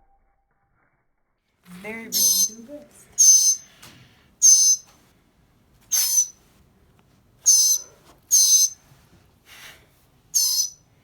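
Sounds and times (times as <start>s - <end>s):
bird squawking: 2.1s - 2.6s, 3.2s - 3.7s, 4.4s - 4.9s, 5.9s - 6.4s, 7.4s - 8.8s, 10.4s - 10.8s.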